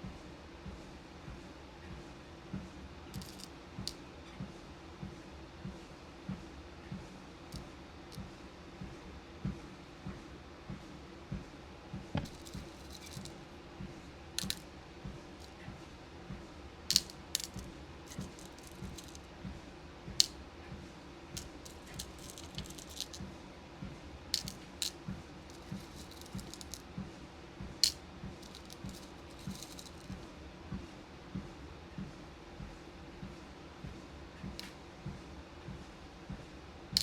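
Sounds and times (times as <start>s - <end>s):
beads and pins clicking: 3.2s - 4.0s, 12.2s - 13.4s, 14.4s - 14.6s, 16.9s - 19.3s, 21.4s - 23.2s, 24.4s - 26.8s, 27.8s - 30.2s.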